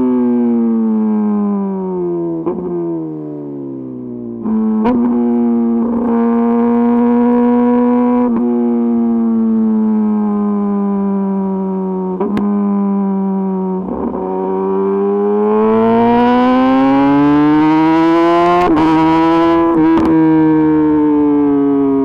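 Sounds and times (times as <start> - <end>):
motorcycle engine revving: 4.4 - 22.0.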